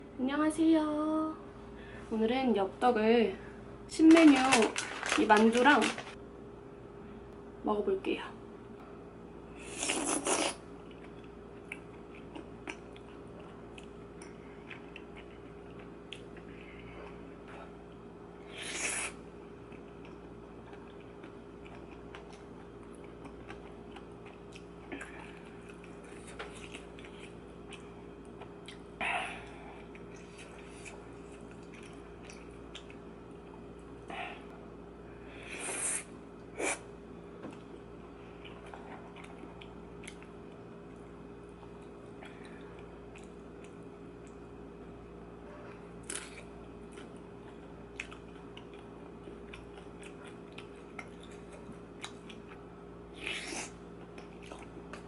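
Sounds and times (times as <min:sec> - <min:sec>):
steady low hum: 0:00.0 - 0:55.0
soft chewing: 0:09.7 - 0:18.1, 0:18.9 - 0:34.1, 0:37.5 - 0:55.0.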